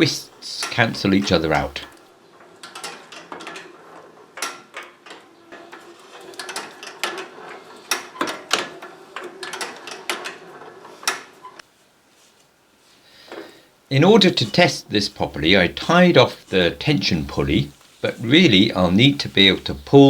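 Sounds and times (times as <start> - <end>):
belts and pulleys clicking: 0.4 - 11.6.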